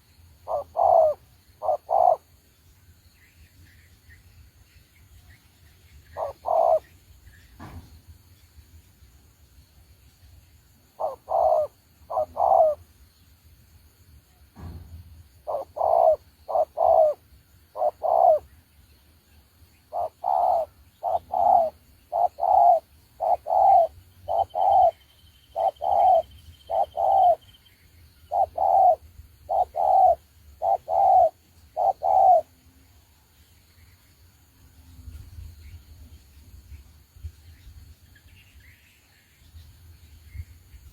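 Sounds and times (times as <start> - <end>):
dove cooing: 0.0 - 2.3, 6.1 - 7.0, 11.0 - 12.9, 15.4 - 18.5, 19.9 - 27.5, 28.3 - 32.6.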